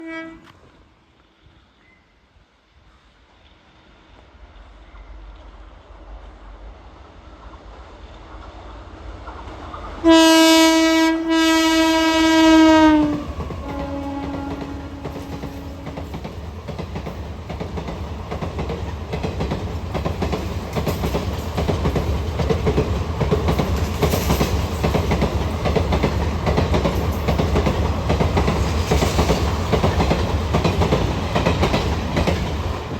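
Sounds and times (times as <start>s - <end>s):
passing train rumble: 0.0s - 32.9s
wheels clacking over rails: 13.1s - 32.9s.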